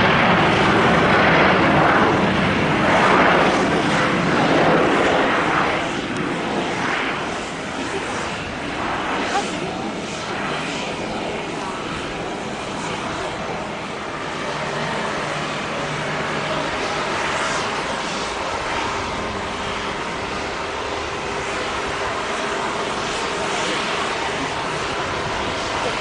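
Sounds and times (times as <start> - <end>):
jet engines rushing: 0.0 - 26.0.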